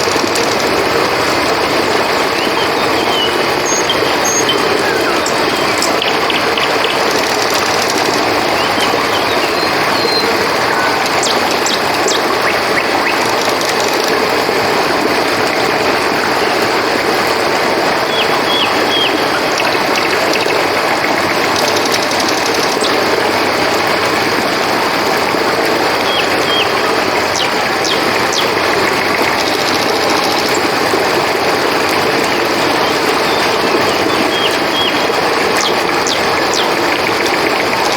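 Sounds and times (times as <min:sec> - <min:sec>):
crickets chirping: 0:00.0 - 0:37.9
river water flowing: 0:00.0 - 0:37.9.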